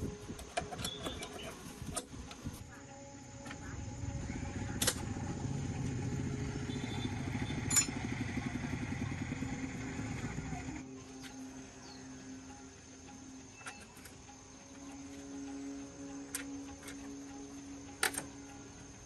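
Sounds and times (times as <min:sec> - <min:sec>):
motor running with fast pulse: 0:02.3 - 0:19.0
sharp clicks: 0:16.1 - 0:18.8.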